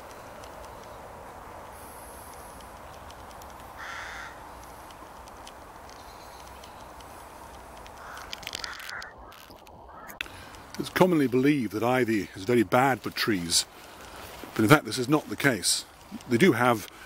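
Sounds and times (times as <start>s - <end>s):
crow cawing: 3.7s - 4.8s, 8.0s - 10.5s.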